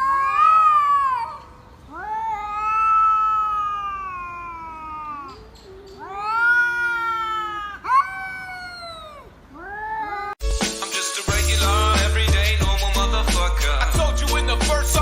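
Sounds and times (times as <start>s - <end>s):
cat yowling: 0.0s - 10.4s.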